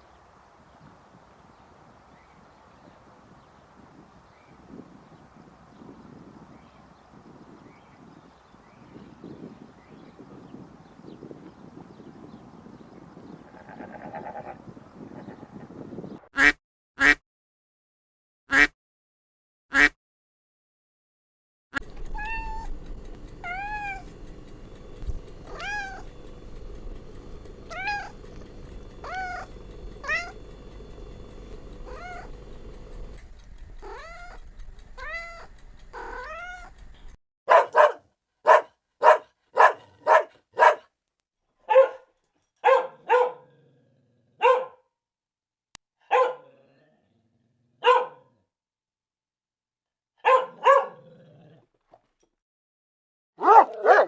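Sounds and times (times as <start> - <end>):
steady background hum: 21.9 - 37.2
kitten meowing: 25.5 - 26.0, 27.7 - 28.1, 29.0 - 30.4, 31.9 - 32.3
small dog yapping: 25.5 - 26.1, 27.7 - 28.2, 29.0 - 30.4, 31.8 - 32.4, 33.8 - 34.4, 35.0 - 36.8, 37.5 - 40.8, 41.7 - 42.0, 42.6 - 43.6, 44.4 - 44.8, 46.1 - 46.7, 47.8 - 48.3, 50.2 - 51.2, 53.4 - 54.0.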